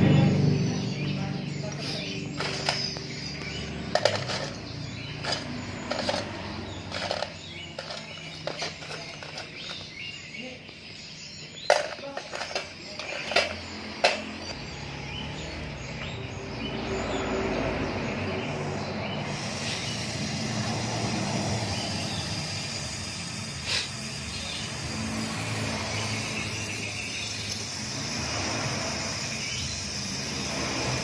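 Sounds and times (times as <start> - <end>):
hand tools clicking on pipes: 1.7 - 10.0, 11.6 - 14.5.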